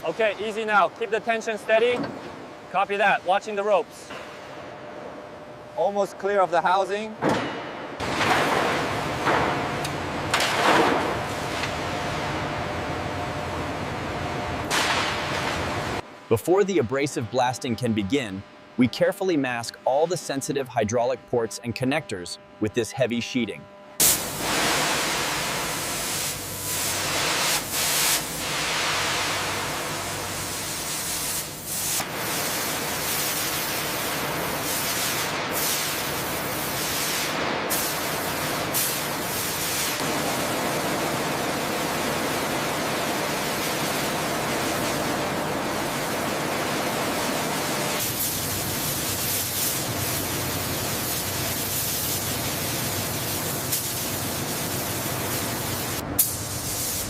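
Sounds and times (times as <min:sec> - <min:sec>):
abrasive blasting hiss: 0:47.9 - 0:57.0.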